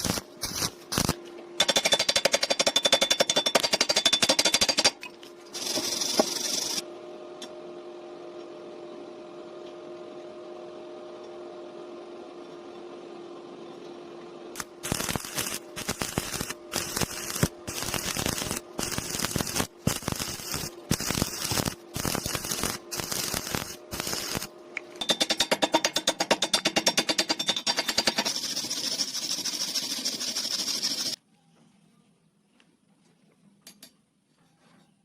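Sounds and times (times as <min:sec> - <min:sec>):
electrical hum: 0:00.0 - 0:02.6, 0:04.8 - 0:25.1
welding arc crackling: 0:00.0 - 0:02.7, 0:05.6 - 0:06.8, 0:14.6 - 0:24.5, 0:28.0 - 0:31.2.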